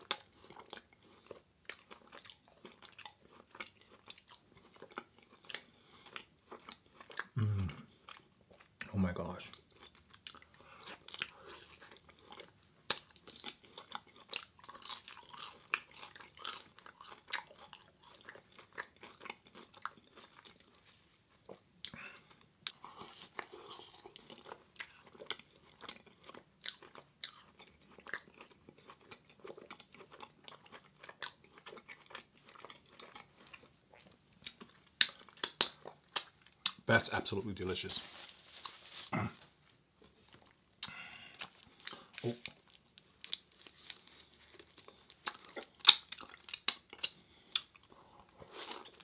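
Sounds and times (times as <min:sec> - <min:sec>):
person chewing fried dough: 0:00.0 - 0:08.9, 0:09.5 - 0:36.8, 0:38.1 - 0:49.0
mouth clicks and crunches: 0:00.0 - 0:20.7, 0:21.5 - 0:36.9, 0:40.3 - 0:49.0.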